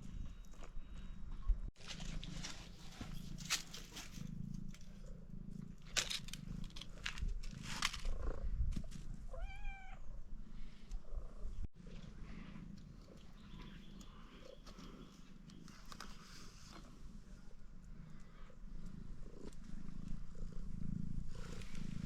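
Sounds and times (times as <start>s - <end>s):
cat purring: 0.1s - 9.3s, 10.1s - 22.0s
clicks and rustles: 1.8s - 5.0s, 5.6s - 9.1s
cat meowing: 9.3s - 10.1s.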